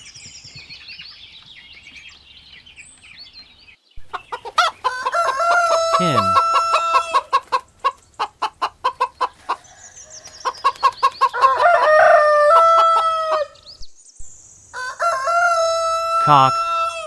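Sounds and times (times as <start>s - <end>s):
hen clucking: 4.0s - 9.8s.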